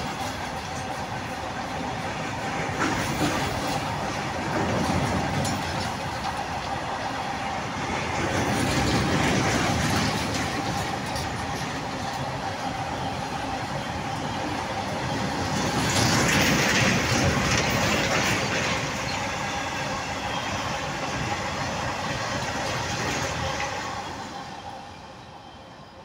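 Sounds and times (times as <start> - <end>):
freight train rumbling past: 0.0 - 26.0
wheels clattering over rail joints: 2.6 - 6.8, 8.0 - 12.4, 15.1 - 19.4.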